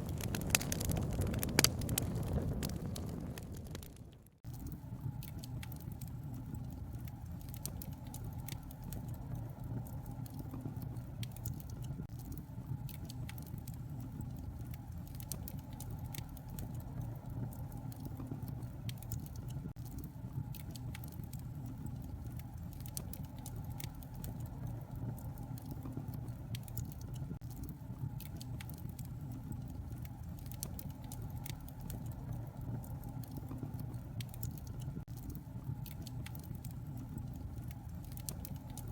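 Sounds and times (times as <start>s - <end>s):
fire low rushing rumble: 0.0s - 7.5s
wood fire pops and snaps: 0.0s - 38.9s.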